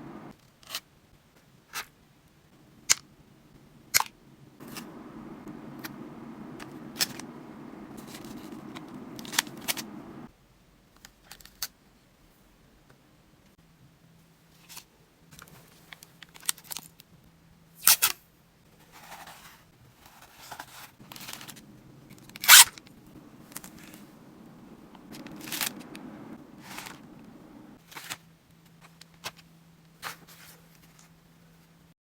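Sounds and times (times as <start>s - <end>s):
air conditioner hum: 0.0s - 0.3s, 2.4s - 10.3s, 21.0s - 27.8s.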